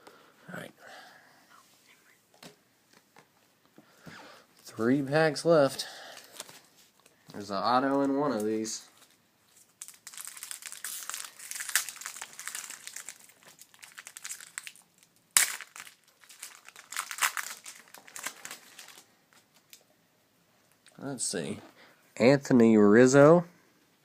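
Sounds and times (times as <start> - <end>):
foil wrapper crinkling: 7.9 - 19.8.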